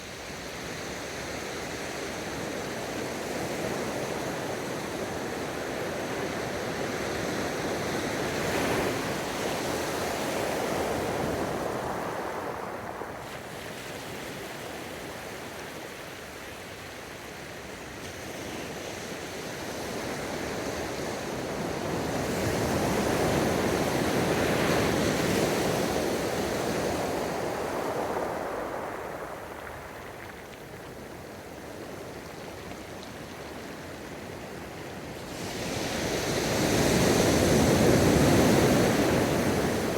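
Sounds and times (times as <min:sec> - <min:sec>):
ocean waves breaking on shore: 0:07.9 - 0:16.5, 0:19.6 - 0:39.9.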